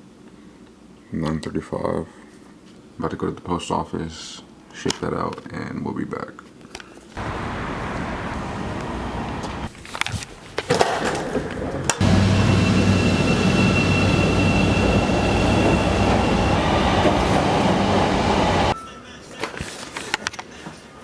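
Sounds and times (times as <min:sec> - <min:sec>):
train rumbling with high whine: 0:07.2 - 0:10.0, 0:11.1 - 0:18.8.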